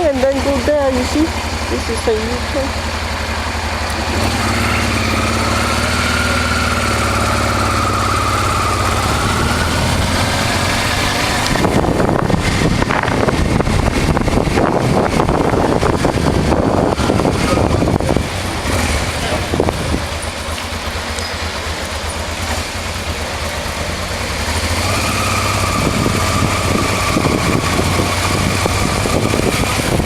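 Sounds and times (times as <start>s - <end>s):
motorcycle engine rumble: 0.0s - 30.0s.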